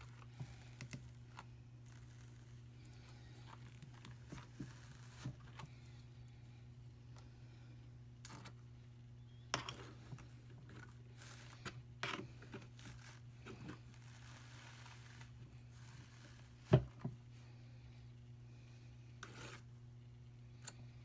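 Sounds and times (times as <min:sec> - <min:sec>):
fibre rustling on a drum carder: 0:00.0 - 0:06.0, 0:09.9 - 0:17.5.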